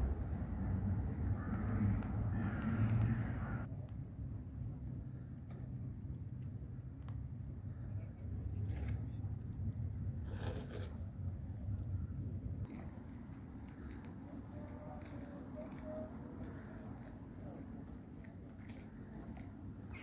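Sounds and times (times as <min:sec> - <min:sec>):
low continuous rumble: 0:00.0 - 0:15.0.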